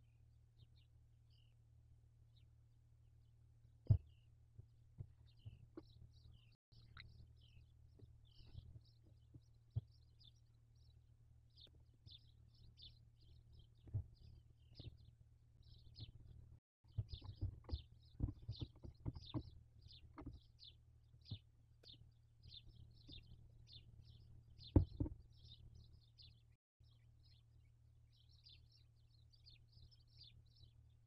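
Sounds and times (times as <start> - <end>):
small birds chirping: 0.0 - 1.7, 3.8 - 31.0
dull knocks and scuffs: 3.9 - 6.0, 16.9 - 20.5, 24.7 - 25.2.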